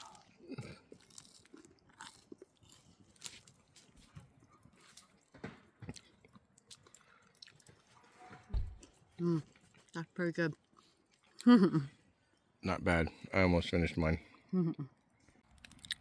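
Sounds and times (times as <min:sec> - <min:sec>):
person chewing crunchy sandwich: 0:00.0 - 0:08.0, 0:08.8 - 0:10.0, 0:10.6 - 0:12.5, 0:15.0 - 0:16.0.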